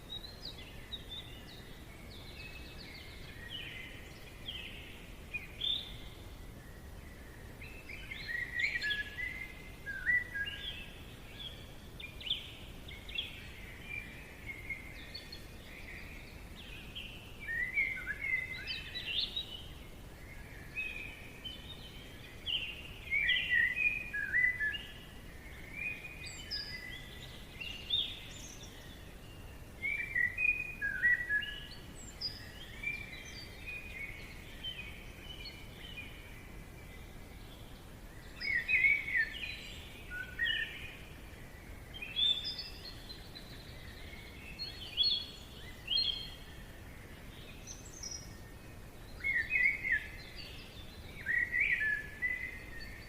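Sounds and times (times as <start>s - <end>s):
birds singing: 0.0s - 53.0s
faint background hiss: 0.0s - 53.0s.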